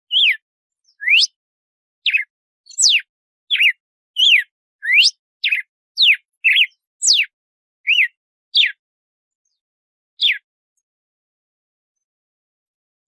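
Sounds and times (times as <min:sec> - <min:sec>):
bird whistling song: 0:00.1 - 0:01.4, 0:02.0 - 0:08.8, 0:10.2 - 0:10.5.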